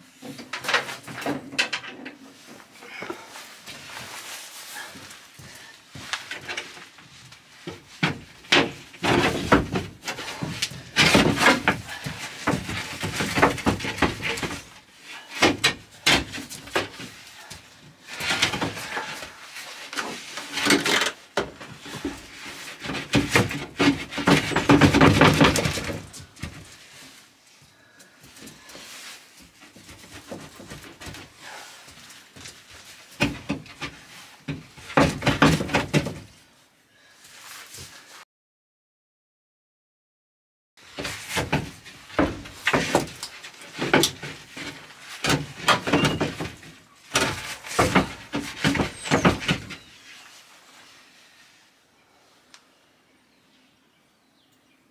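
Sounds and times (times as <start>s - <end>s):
wooden panel scraping and knocking: 7.6s - 14.8s, 20.0s - 26.7s, 33.2s - 36.4s, 40.9s - 49.9s.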